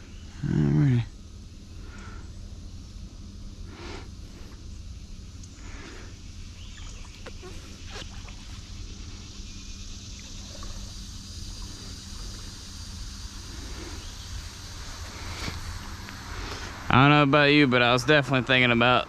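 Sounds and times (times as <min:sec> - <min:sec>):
running water hiss: 0:00.0 - 0:19.0.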